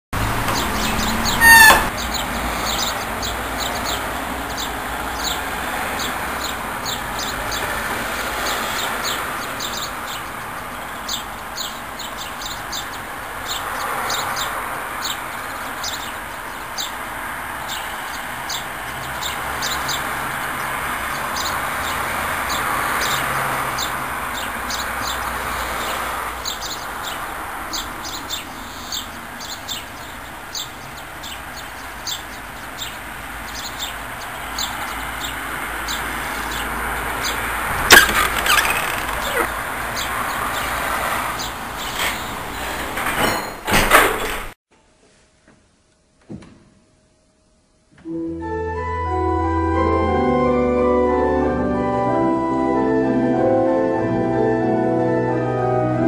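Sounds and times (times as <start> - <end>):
birds chirping: 0.2 - 43.9
loud rising bird call: 0.5 - 3.0, 36.4 - 40.6.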